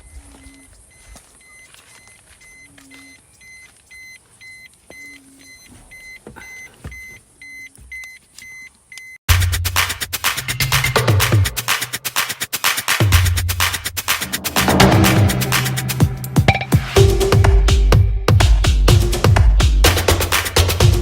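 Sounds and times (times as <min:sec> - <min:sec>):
faint high electronic beep: 0:00.0 - 0:09.2
loud electronic music with beat: 0:09.3 - 0:21.0.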